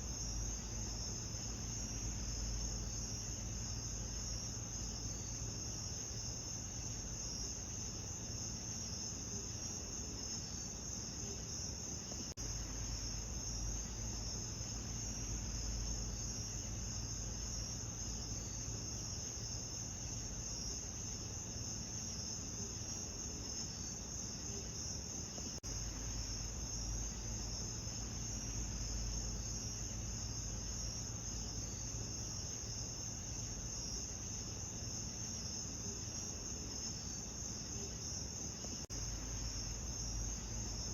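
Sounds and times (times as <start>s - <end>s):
low steady rumble: 0.0s - 8.3s, 12.4s - 21.6s, 25.6s - 35.4s, 38.9s - 40.9s
crickets chirping: 0.0s - 40.9s.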